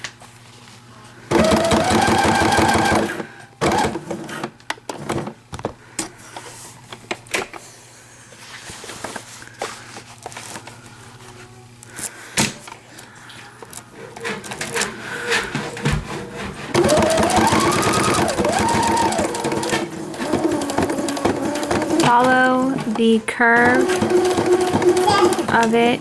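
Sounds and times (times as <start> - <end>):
sewing machine stitching: 1.3 - 5.4, 14.0 - 26.0.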